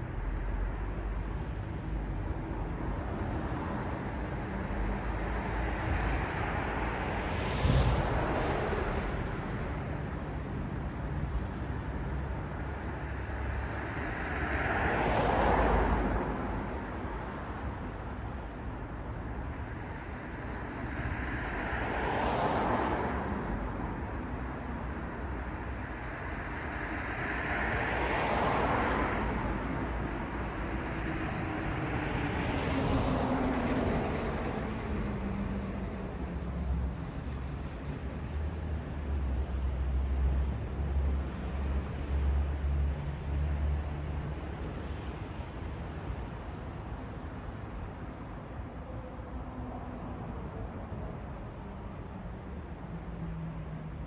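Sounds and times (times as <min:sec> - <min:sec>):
traffic hum: 0:00.0 - 0:54.0
vehicles passing: 0:00.0 - 0:54.0.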